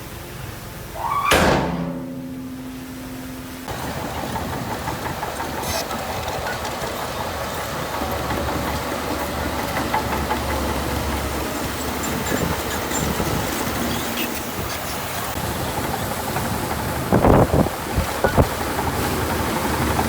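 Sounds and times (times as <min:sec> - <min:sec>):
heavy diesel machinery running: 0:00.0 - 0:20.0
loud crash: 0:01.0 - 0:03.7.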